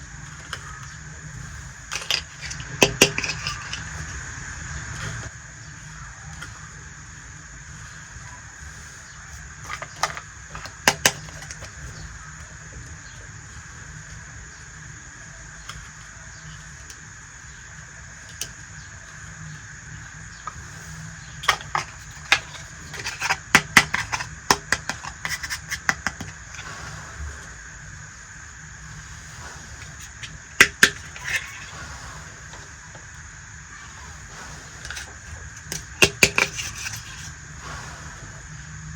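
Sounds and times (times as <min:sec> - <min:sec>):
steady background hiss: 0:00.0 - 0:38.9
toy kitchen pieces clicking: 0:01.9 - 0:04.1, 0:09.6 - 0:11.9, 0:21.4 - 0:26.6, 0:30.0 - 0:31.7, 0:34.9 - 0:37.3.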